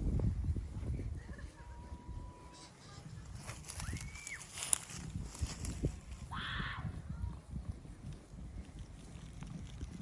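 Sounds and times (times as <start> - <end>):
wind rumbling on microphone: 0.0 - 10.0
sheep moving through grass: 2.6 - 6.3.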